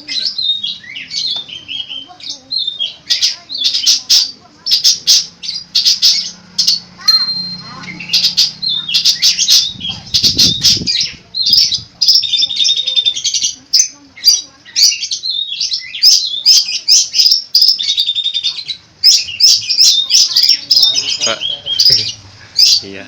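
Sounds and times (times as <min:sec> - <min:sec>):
shrike singing: 0:00.0 - 0:23.0.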